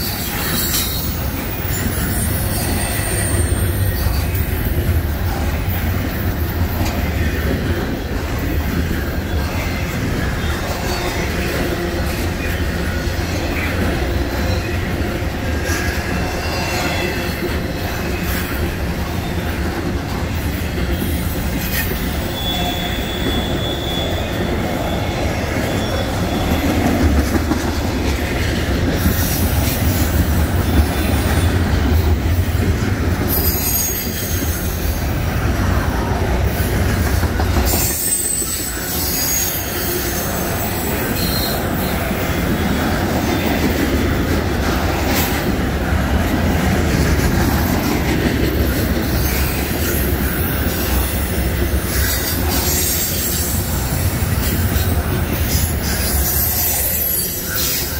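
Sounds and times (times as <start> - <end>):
high wheel squeals: 0.0 - 4.4, 20.9 - 27.2, 33.3 - 35.1, 37.6 - 43.6
steel wheels rumbling on rails: 0.0 - 57.9.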